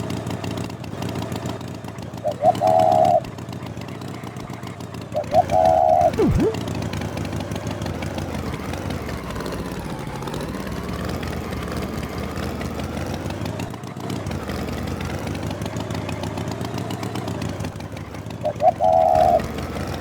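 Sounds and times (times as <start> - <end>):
engine idling: 0.0 - 20.0
whistle-like swoop: 5.3 - 6.7.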